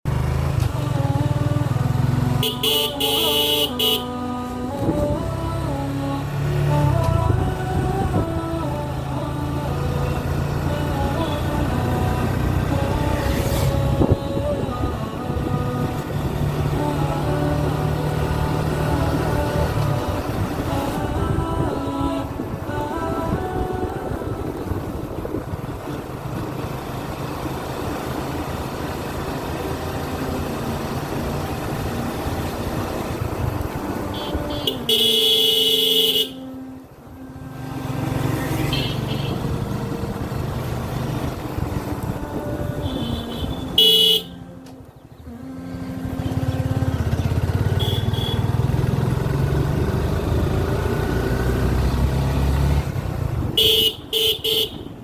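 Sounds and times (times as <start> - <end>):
road noise: 0.0 - 55.0
motorcycle engine running: 0.1 - 36.9, 37.5 - 55.0
vehicle horn blasts: 2.3 - 4.4, 34.0 - 36.8, 38.6 - 39.6, 42.3 - 44.6, 47.6 - 48.7, 53.5 - 55.0.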